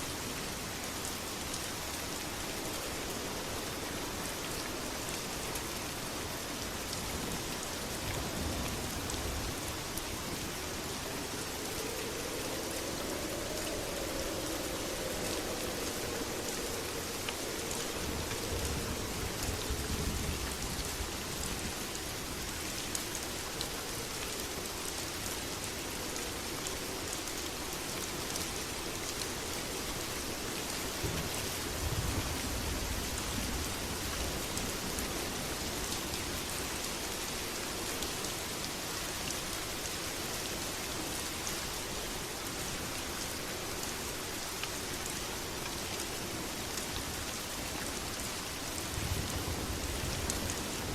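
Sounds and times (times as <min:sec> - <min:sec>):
heavy rain: 0:00.0 - 0:50.9
low rumble: 0:10.2 - 0:21.6.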